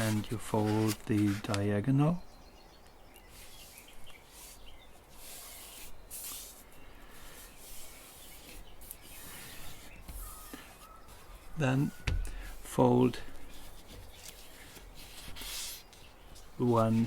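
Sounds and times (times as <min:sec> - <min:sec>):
paper rustling and creasing: 0:00.0 - 0:01.6, 0:03.3 - 0:17.0.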